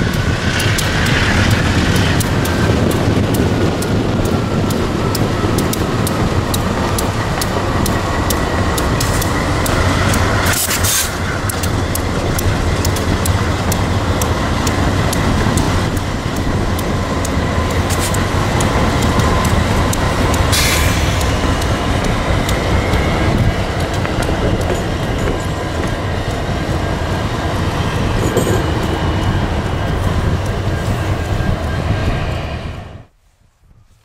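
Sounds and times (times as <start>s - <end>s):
wheels clicking over rail joints: 0.0s - 32.5s
train rumbling past: 0.0s - 33.2s.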